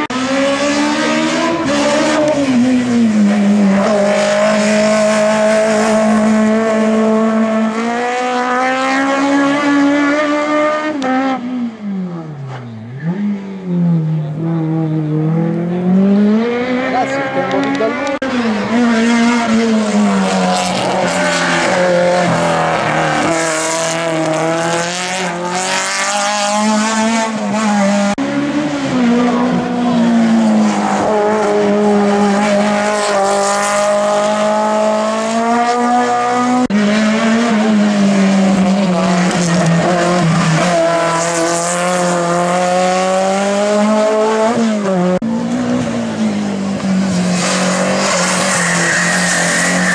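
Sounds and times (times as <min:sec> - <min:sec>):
race car engines revving: 0:00.0 - 0:49.9.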